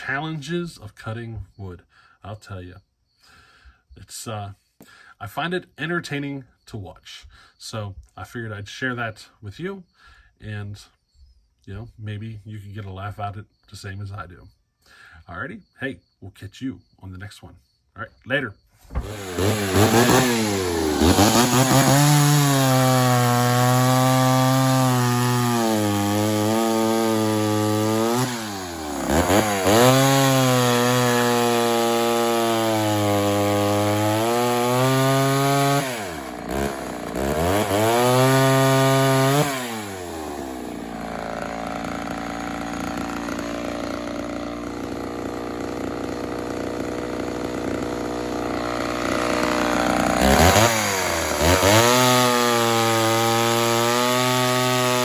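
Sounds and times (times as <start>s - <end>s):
chainsaw cutting wood: 18.9s - 55.0s.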